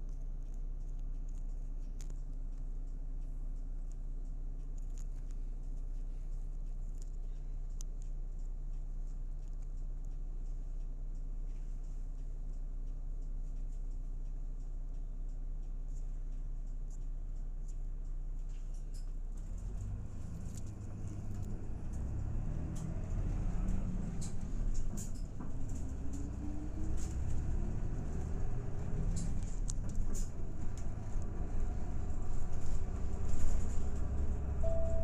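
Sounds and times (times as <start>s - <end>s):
bus diesel engine drone: 19.4s - 35.0s.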